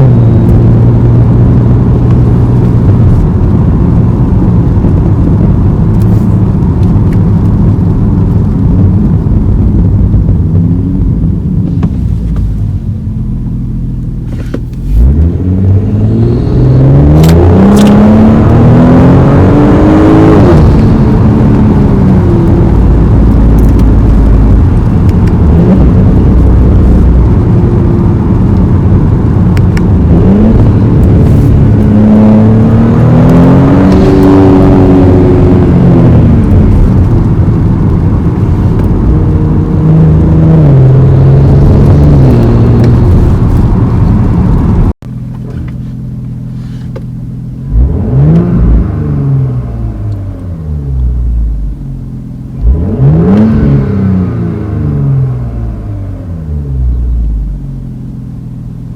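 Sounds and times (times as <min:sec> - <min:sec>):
car engine revving: 0:00.0 - 0:58.9.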